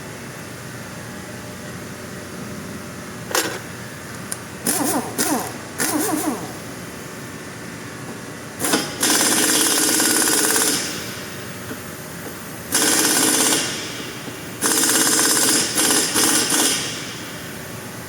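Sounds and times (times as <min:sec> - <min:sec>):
pneumatic impact wrench rattling: 0:03.3 - 0:03.7, 0:04.6 - 0:06.8, 0:08.6 - 0:11.3, 0:12.7 - 0:17.3.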